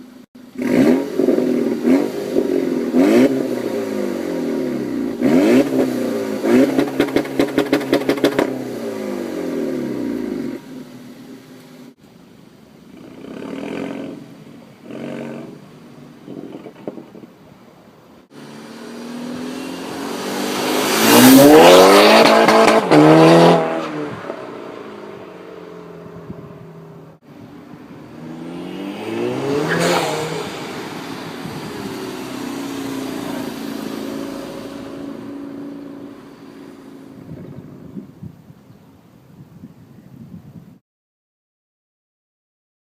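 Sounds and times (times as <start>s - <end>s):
car engine accelerating hard: 18.3s - 25.3s, 28.1s - 37.6s.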